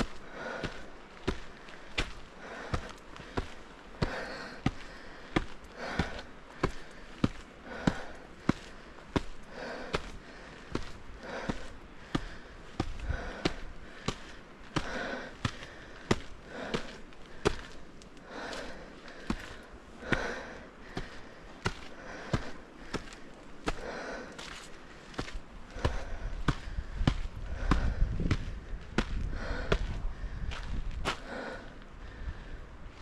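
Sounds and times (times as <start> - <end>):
footsteps clicking: 0.0 - 31.5
wind rumble on microphone: 25.7 - 33.0.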